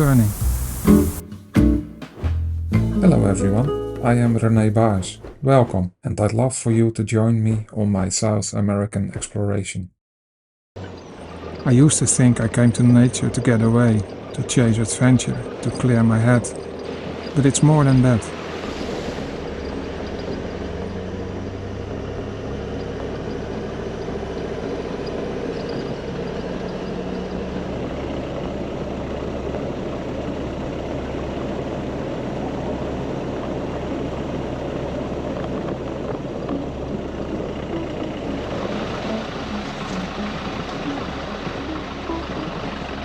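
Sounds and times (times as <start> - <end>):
hissing road noise: 0.0 - 1.3, 10.8 - 43.0
vehicle engine droning: 0.0 - 1.6, 10.8 - 43.0.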